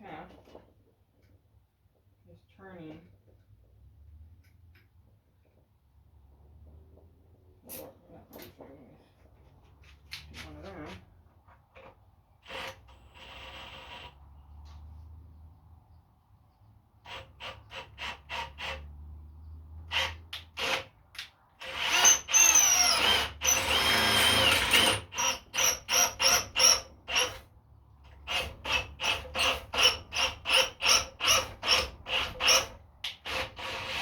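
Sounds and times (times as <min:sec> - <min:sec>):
continuous grinding screech: 0:11.8 - 0:15.0, 0:17.0 - 0:21.0, 0:21.6 - 0:34.0
thread tap squealing in steel: 0:21.9 - 0:23.6.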